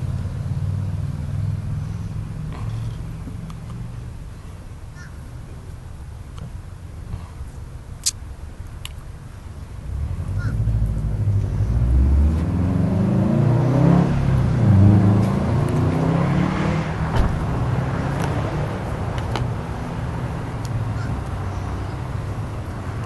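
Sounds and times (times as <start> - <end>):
car engine revving: 9.8 - 23.0.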